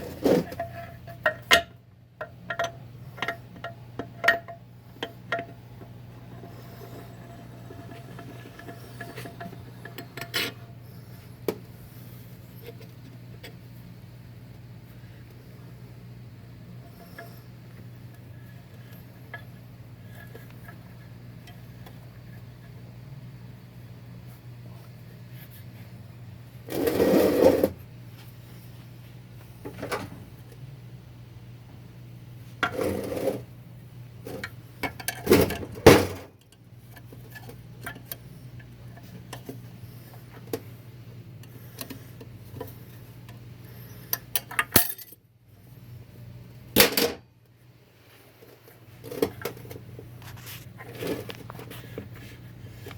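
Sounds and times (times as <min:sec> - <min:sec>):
steady low hum: 0:00.0 - 0:52.9
metal parts clinking and knocking: 0:44.4 - 0:45.2.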